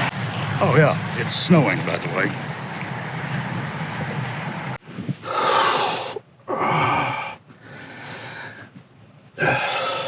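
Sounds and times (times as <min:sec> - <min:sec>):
steady rush of noise: 0:00.0 - 0:06.5.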